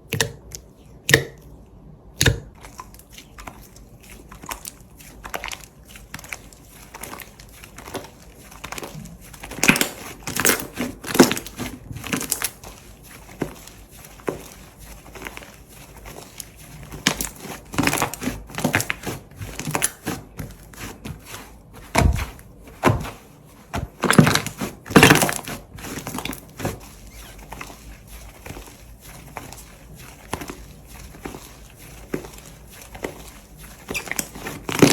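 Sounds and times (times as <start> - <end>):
slime crackling and popping: 33.8 - 34.9.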